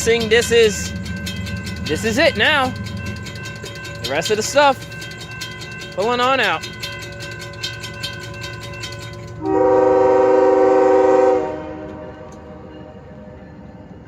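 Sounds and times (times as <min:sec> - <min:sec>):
rapid even clicking: 0:00.0 - 0:09.5
locomotive engine rumble: 0:00.0 - 0:14.0
locomotive air horn blast: 0:09.4 - 0:12.4.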